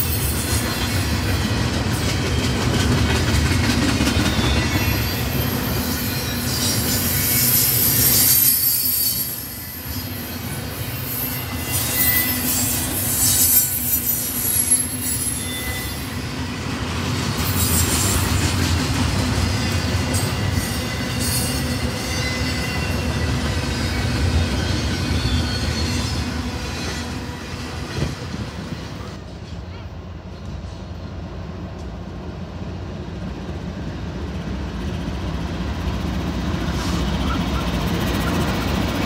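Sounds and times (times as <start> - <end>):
steel wheels rumbling on rails: 0.0 - 39.0
high-pitched wheel squeal: 4.1 - 16.3, 19.5 - 27.2.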